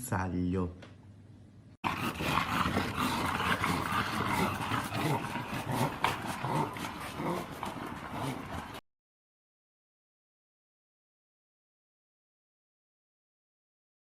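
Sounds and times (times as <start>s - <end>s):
dog growling: 1.8s - 8.8s.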